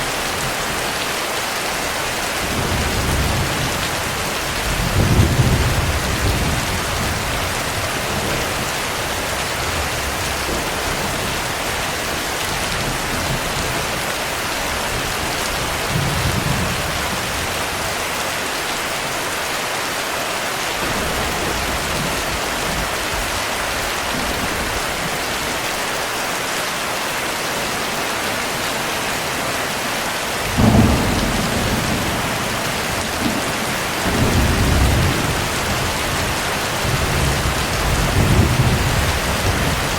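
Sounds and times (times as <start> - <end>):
heavy rain: 0.0 - 39.9
thunder rolling: 30.4 - 39.9.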